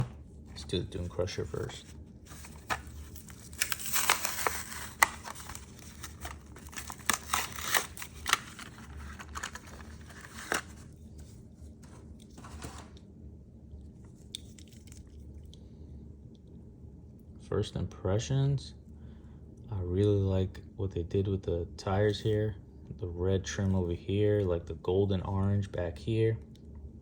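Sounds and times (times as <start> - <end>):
plastic packaging crinkling and tearing: 1.3 - 12.9, 14.2 - 15.2.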